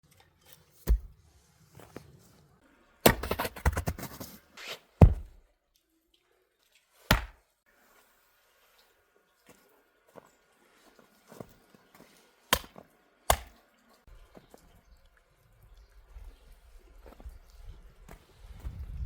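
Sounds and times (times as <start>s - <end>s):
hard knocks: 5.0s - 5.4s, 7.1s - 7.4s.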